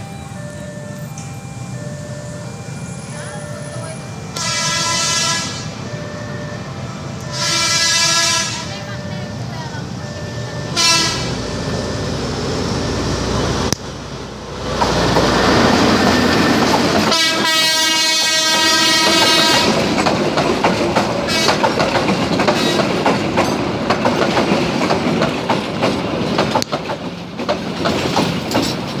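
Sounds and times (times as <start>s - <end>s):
diesel locomotive engine: 0.0s - 29.0s
train horn: 4.4s - 5.8s, 7.3s - 8.9s, 10.7s - 11.5s, 17.1s - 19.9s, 21.3s - 21.6s
wheels clacking over rail joints: 14.5s - 17.5s, 18.6s - 29.0s.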